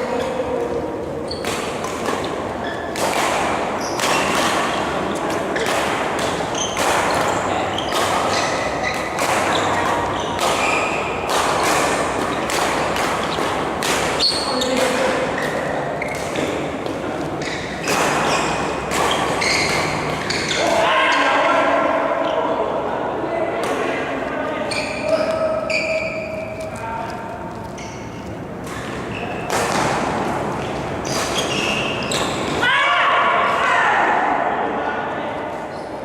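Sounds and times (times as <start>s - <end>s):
racket hitting shuttlecock: 0.2s - 20.9s, 27.9s - 32.6s
shoe squeaks: 1.2s - 1.8s, 2.6s - 3.0s, 3.8s - 4.4s, 6.4s - 11.2s, 14.2s - 14.8s, 15.4s - 16.4s, 17.4s - 20.8s, 24.5s - 27.0s, 27.6s - 29.5s, 31.0s - 32.6s, 35.7s - 36.0s.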